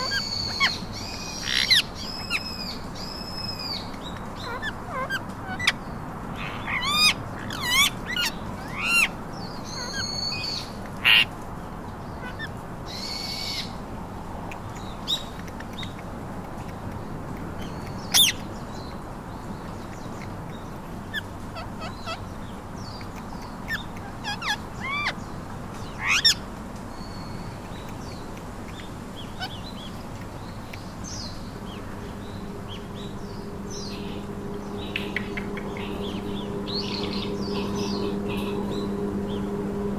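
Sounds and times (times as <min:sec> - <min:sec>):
parakeets screeching: 0:00.0 - 0:11.3, 0:17.7 - 0:18.4, 0:21.0 - 0:26.4, 0:28.0 - 0:39.5
low steady hum: 0:00.0 - 0:39.9.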